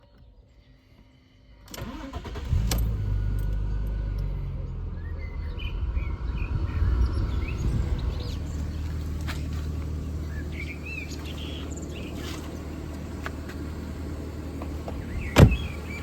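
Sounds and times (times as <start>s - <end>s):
car starter cranking: 1.7s - 4.4s, 8.4s - 16.0s
car engine idling: 1.8s - 16.0s.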